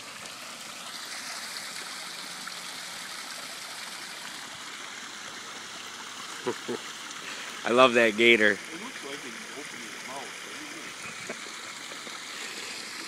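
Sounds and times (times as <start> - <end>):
garden waterfall splashing: 0.0 - 13.0.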